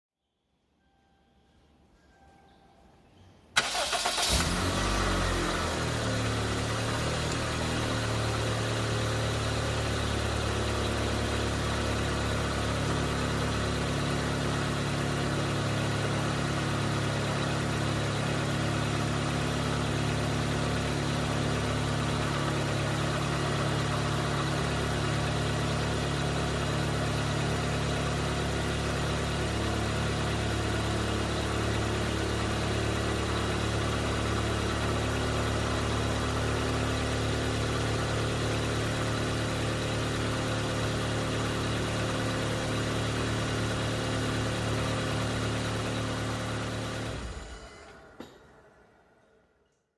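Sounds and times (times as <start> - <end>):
car engine cranking: 3.6 - 8.6
car engine idling: 3.6 - 48.1.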